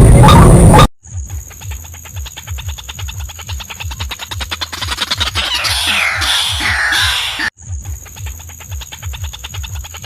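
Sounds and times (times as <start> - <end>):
harsh bird call: 4.8 - 7.5.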